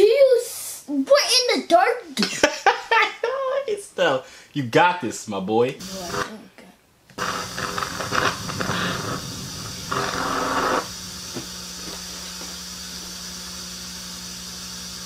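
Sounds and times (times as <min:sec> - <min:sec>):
steady low hum: 0:05.7 - 0:15.0
rushing static-like hiss: 0:05.8 - 0:06.4, 0:07.1 - 0:15.0.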